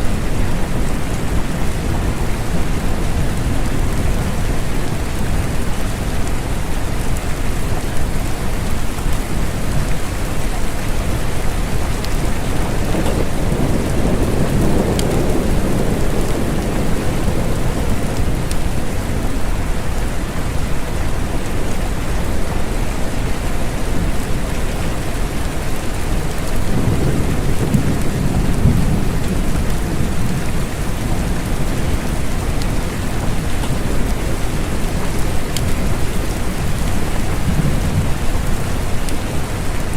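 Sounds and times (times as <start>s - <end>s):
steady rain: 0.0s - 39.9s
low rolling thunder: 11.1s - 39.6s.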